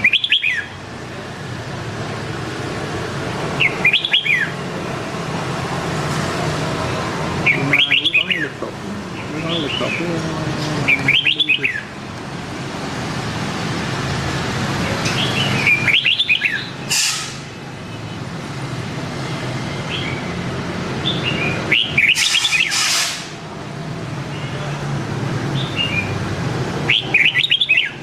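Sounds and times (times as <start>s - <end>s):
bird singing warbling phrases: 0.0s - 0.8s, 3.6s - 4.6s, 7.4s - 12.0s, 15.1s - 16.8s, 21.0s - 22.8s, 26.8s - 28.0s
brief noisy burst: 22.2s - 23.4s.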